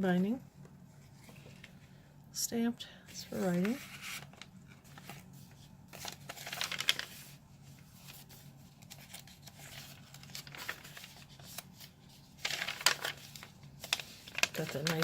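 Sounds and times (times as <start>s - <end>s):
paper rustling and crinkling: 3.1s - 15.0s.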